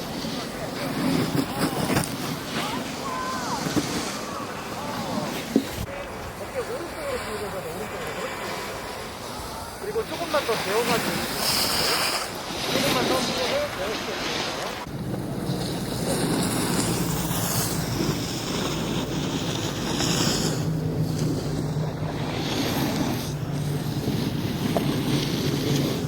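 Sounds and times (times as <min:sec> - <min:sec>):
wind buffeting microphone: 0:14.8 - 0:26.0.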